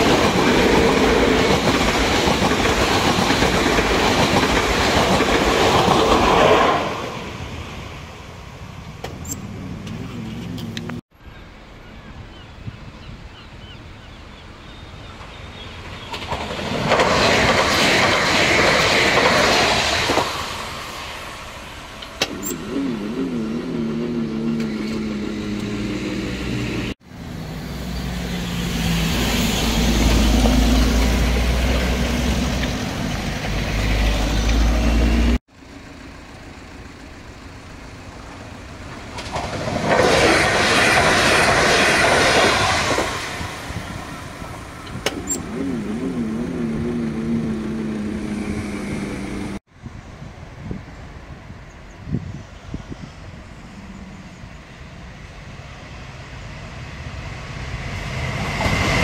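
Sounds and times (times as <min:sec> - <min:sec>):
city bus engines running low: 0:21.4 - 0:39.6.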